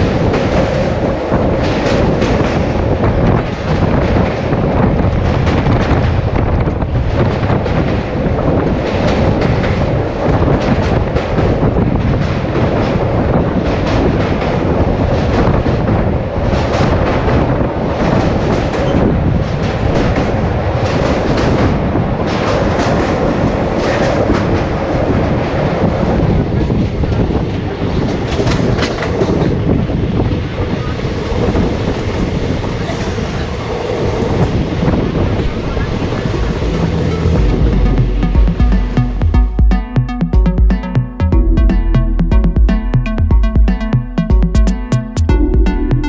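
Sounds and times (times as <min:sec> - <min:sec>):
train wheels clattering on rails: 0:00.0 - 0:30.5.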